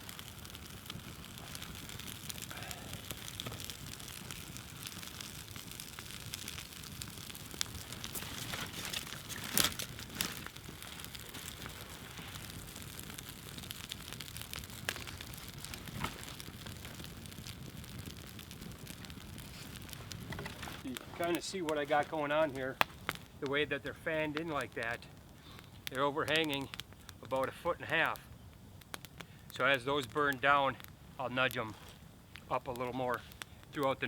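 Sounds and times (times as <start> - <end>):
sharp pops: 0.0 - 23.6
campfire crackling: 0.0 - 34.0.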